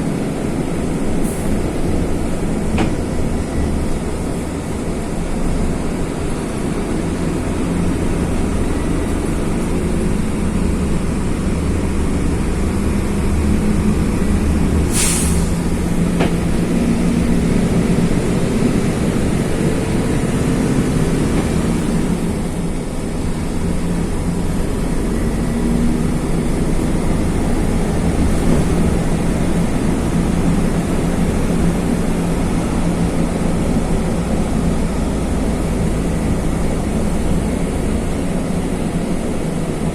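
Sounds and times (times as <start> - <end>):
bus diesel engine running: 0.0 - 39.9
compressed air hiss: 14.9 - 15.7.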